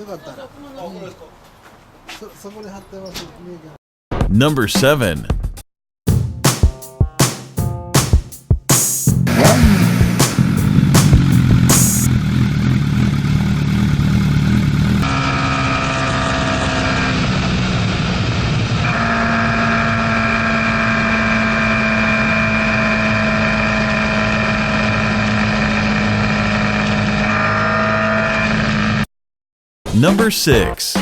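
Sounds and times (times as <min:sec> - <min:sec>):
motorcycle engine running: 0:09.3 - 0:29.0.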